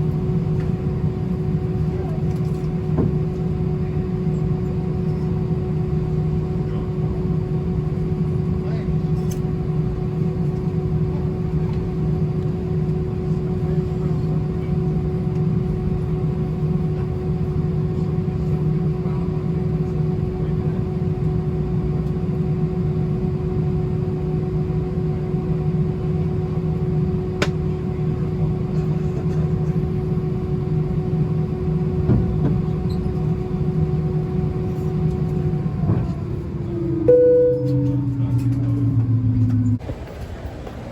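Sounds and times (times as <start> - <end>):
airplane cabin hum: 0.0 - 40.9
constant mid-pitched tone: 36.6 - 39.8.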